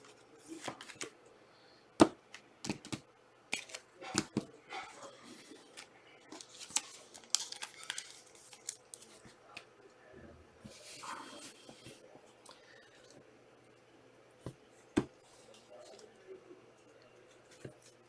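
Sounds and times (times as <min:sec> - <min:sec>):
cards clicking and tapping: 0:00.0 - 0:01.2, 0:02.0 - 0:04.5
wrappers rustling and crinkling: 0:05.5 - 0:09.3.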